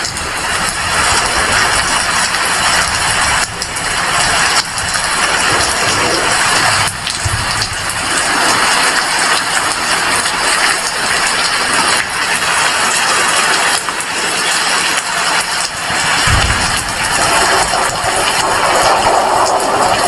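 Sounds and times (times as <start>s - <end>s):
heavy rain: 0.0s - 20.0s
low rumble: 16.1s - 19.9s.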